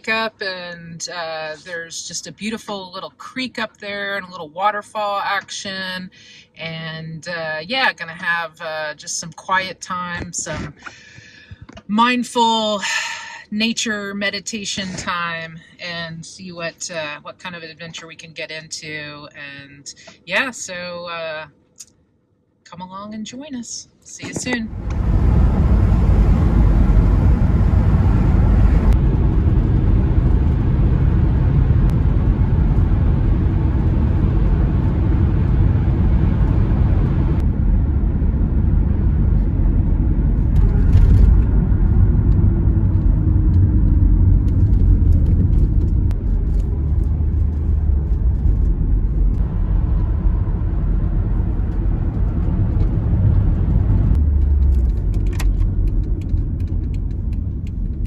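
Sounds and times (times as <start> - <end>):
van engine and road rumble: 24.2 - 58.0.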